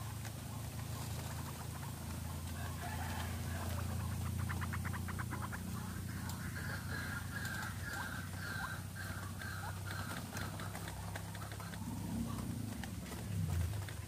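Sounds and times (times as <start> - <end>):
waterhen clucking calls: 0.0 - 14.0
low hum: 3.4 - 14.0.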